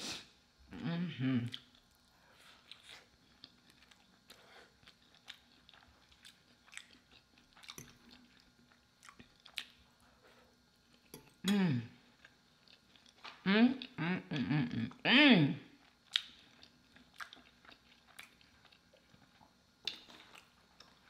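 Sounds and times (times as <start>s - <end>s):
person humming mmm: 0.0s - 1.6s, 11.4s - 12.0s, 13.4s - 15.6s
chewing and wet mouth clicks: 15.9s - 21.0s.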